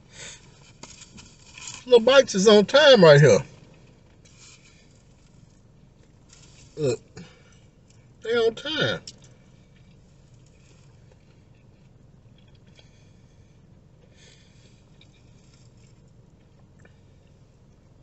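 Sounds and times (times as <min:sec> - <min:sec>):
low car cabin hum: 0:00.0 - 0:18.0
faint chewing: 0:09.0 - 0:18.0.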